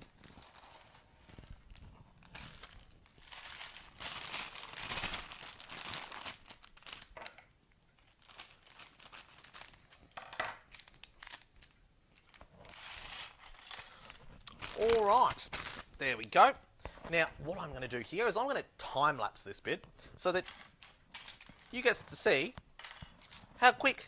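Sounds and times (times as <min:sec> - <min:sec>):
plastic bags crinkling: 0:00.0 - 0:07.3, 0:08.0 - 0:16.2, 0:20.3 - 0:22.6.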